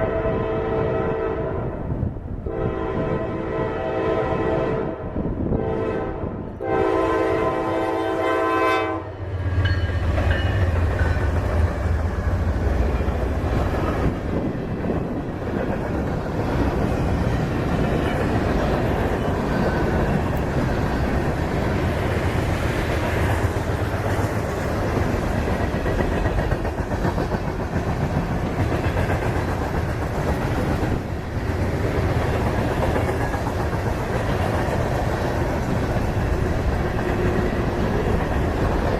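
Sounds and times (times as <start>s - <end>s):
train air horn: 0.0s - 9.3s
freight cars clattering on rails: 9.4s - 38.9s.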